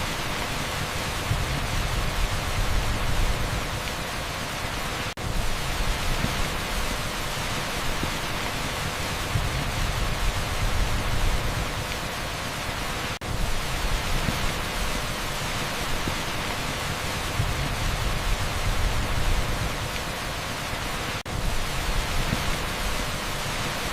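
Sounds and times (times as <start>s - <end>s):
heavy rain on asphalt: 0.0s - 23.9s.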